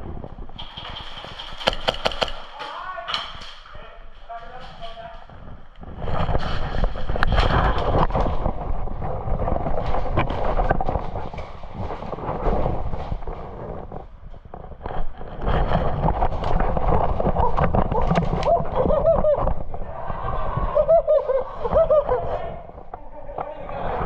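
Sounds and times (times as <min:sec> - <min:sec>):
airsoft guns firing: 0:00.6 - 0:02.8.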